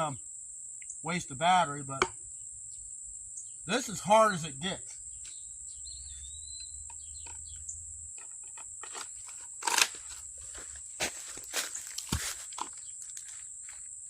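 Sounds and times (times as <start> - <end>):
bird chirp: 0.0 - 8.4
insects droning: 0.0 - 14.0.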